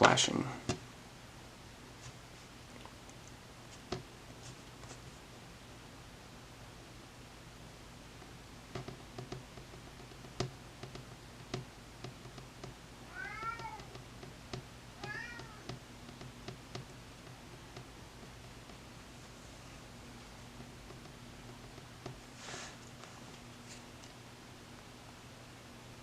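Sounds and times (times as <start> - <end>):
cat meowing: 13.0 - 13.9, 15.0 - 15.7.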